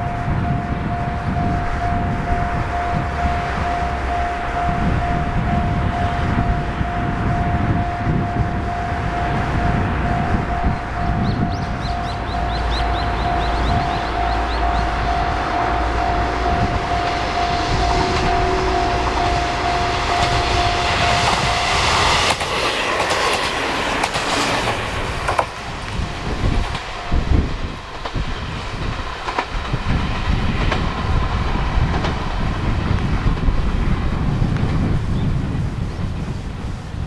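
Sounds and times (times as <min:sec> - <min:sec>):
level crossing alarm: 0:00.0 - 0:24.2, 0:25.4 - 0:28.0
low rumble: 0:00.0 - 0:36.8
diesel train passing: 0:00.0 - 0:37.0.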